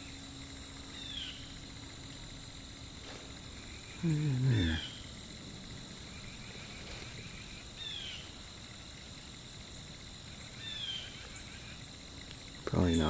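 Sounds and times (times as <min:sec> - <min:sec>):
insects chirping: 0:00.0 - 0:13.0
bird down-slurred calls: 0:03.1 - 0:05.1.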